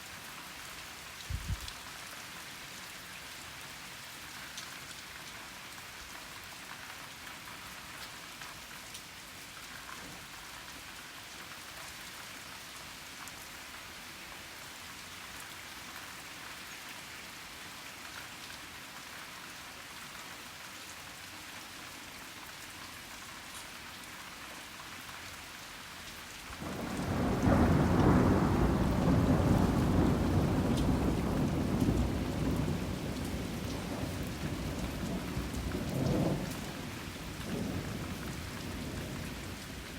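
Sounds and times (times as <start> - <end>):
steady rain falling: 0.0 - 39.9
thunder rumbling: 26.6 - 39.6.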